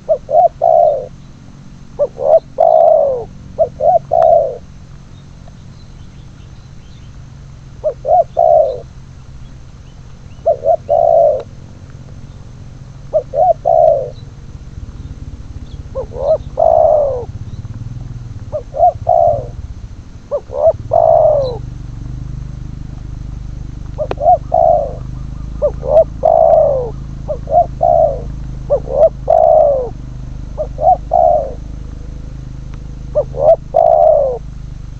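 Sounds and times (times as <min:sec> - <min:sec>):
doves cooing: 0:00.0 - 0:34.9
low rumble: 0:11.2 - 0:34.9.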